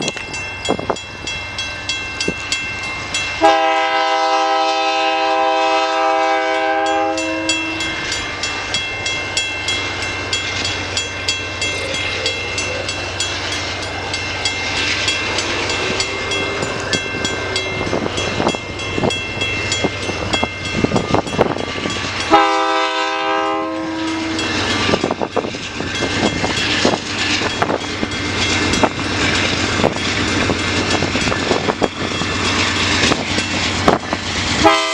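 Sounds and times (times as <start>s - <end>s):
freight train rolling on rails: 0.0s - 34.9s
locomotive horn blasts: 3.4s - 8.0s, 22.3s - 24.4s, 34.6s - 34.9s.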